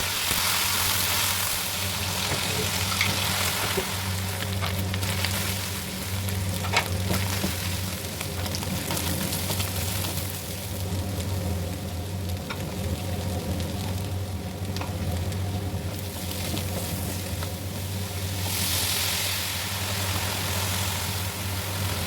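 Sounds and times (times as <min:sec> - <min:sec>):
food sizzling in a pan: 0:00.0 - 0:10.5, 0:16.1 - 0:22.0.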